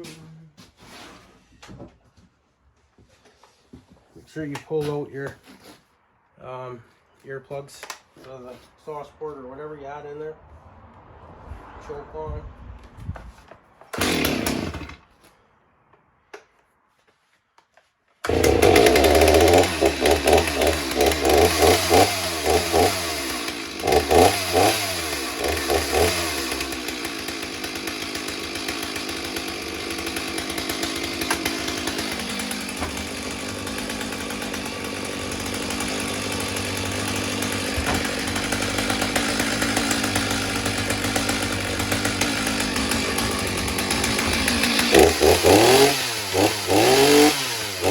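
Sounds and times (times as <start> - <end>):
chainsaw starting and revving: 13.9 - 15.1, 18.2 - 47.9.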